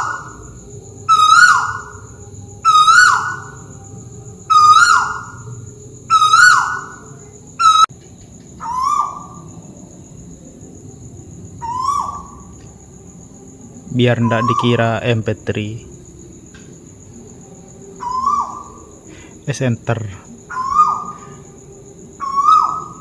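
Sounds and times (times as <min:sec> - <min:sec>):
bird whistling call: 0:00.0 - 0:00.5, 0:01.1 - 0:03.7, 0:04.5 - 0:07.9, 0:08.6 - 0:09.5, 0:11.6 - 0:12.5, 0:14.0 - 0:15.0, 0:18.0 - 0:19.4, 0:20.5 - 0:21.4, 0:22.2 - 0:23.0
high insect drone: 0:00.0 - 0:23.0.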